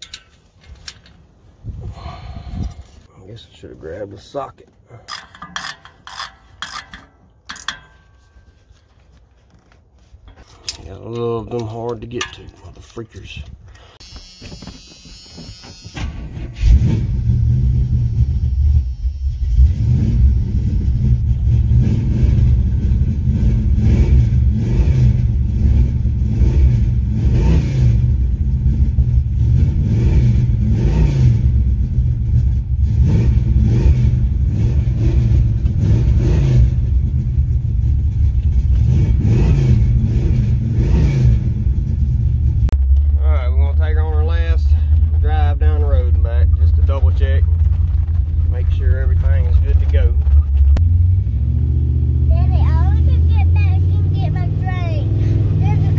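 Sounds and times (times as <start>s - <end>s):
car engine revving: 16.5s - 55.9s.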